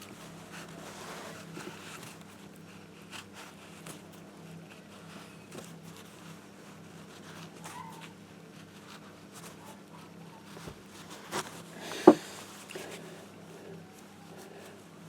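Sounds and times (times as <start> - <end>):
handling noises: 10.6 - 12.9
sharp knock: 12.0 - 12.3.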